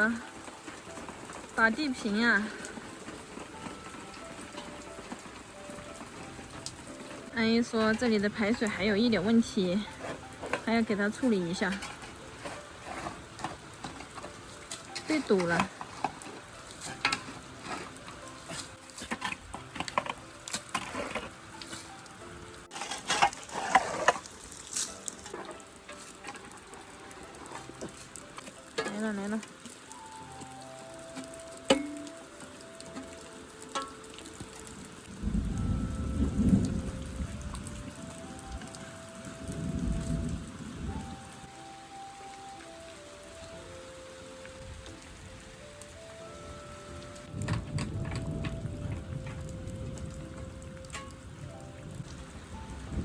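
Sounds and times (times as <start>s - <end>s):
rain falling: 0.0s - 53.0s
scraping and knocking: 9.9s - 22.0s, 22.6s - 29.1s
thunder rumbling: 34.2s - 41.6s, 46.4s - 53.0s.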